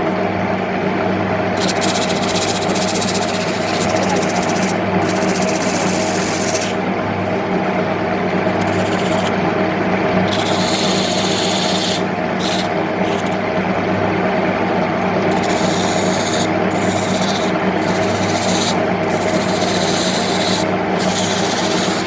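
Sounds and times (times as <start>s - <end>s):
tool scraping spinning wood: 1.6s - 6.8s, 8.3s - 9.5s, 10.2s - 13.6s, 15.3s - 22.0s
wood lathe motor humming: 1.6s - 6.9s, 8.3s - 13.8s, 15.2s - 22.0s.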